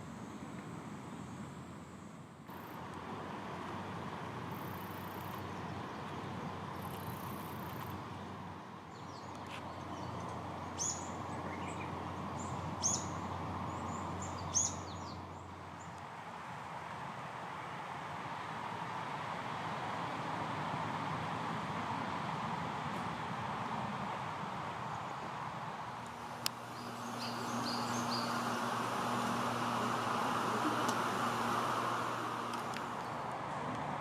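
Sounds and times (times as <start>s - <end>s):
steady rushing background noise: 25.4s - 34.0s
faint bird chirps: 26.7s - 28.7s
bird sharp high calls: 26.7s - 29.4s.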